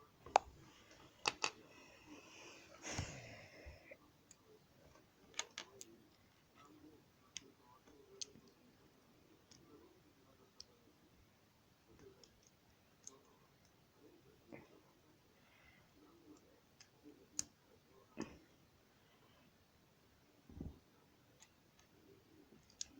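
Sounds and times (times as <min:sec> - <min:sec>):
plastic bricks clicking: 0:01.2 - 0:01.6.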